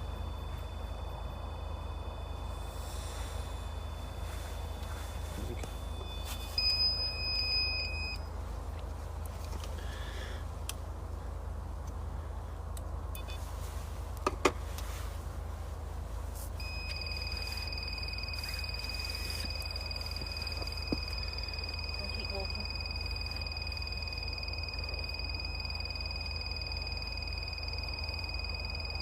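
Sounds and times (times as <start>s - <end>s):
high electronic beep: 0.0s - 8.3s, 16.6s - 29.0s.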